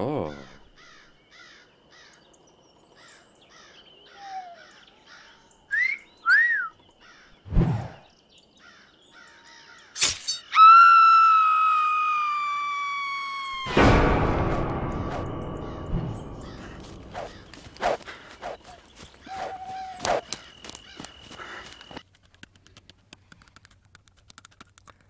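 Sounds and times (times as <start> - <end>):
long high scream sinking in pitch: 10.5 - 13.8
faint rhythmic chirping: 14.3 - 22.1.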